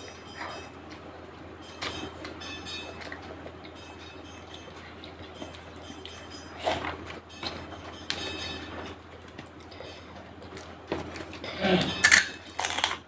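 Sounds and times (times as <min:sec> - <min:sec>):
low steady hum: 0:00.0 - 0:13.0
chewing and mouth noises: 0:01.8 - 0:07.8, 0:08.8 - 0:13.0
sharp crunch or clink: 0:11.8 - 0:13.0.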